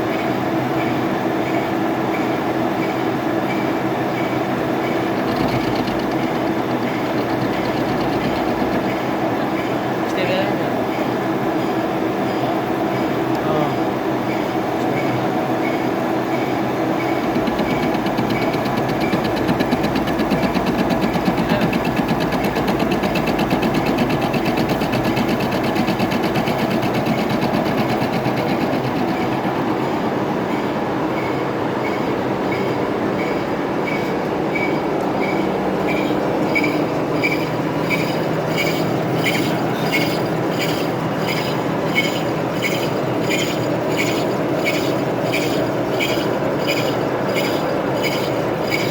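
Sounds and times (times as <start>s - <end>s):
metal lathe humming: 3.1s - 13.4s, 14.0s - 48.9s
regular ticking: 4.9s - 9.4s, 17.1s - 29.8s, 35.3s - 48.9s.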